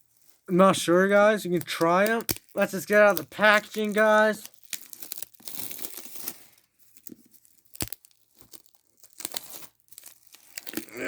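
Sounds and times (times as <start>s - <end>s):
crackling packaging: 0.0s - 11.0s
packaging tearing and crinkling: 1.1s - 11.0s.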